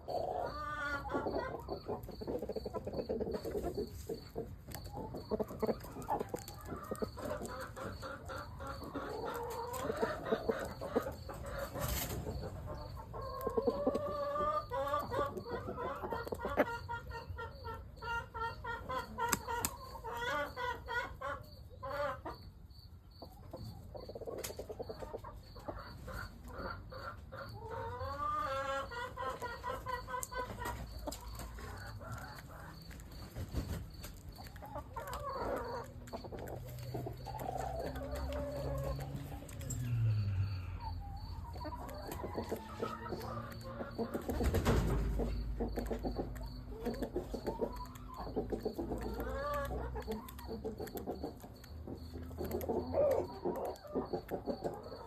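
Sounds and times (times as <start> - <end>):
chickens clucking: 0.0 - 55.0
rooster crowing: 39.8 - 41.1.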